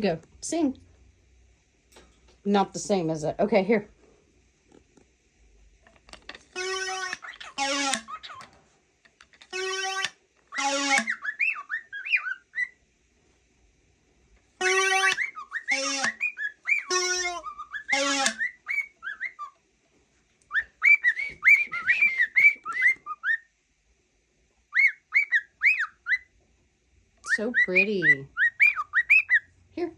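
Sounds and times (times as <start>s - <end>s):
cockatiel whistling: 9.6s - 12.8s, 14.6s - 19.6s, 20.5s - 23.5s, 24.7s - 26.3s, 27.3s - 29.5s.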